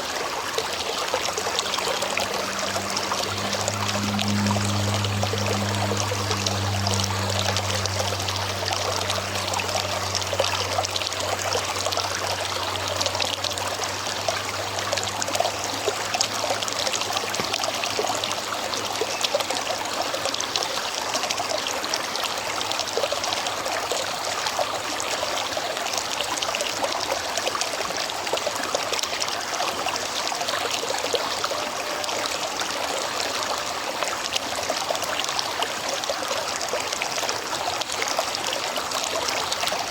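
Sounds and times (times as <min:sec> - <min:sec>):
river water flowing: 0:00.0 - 0:39.9
low hum: 0:00.6 - 0:20.0.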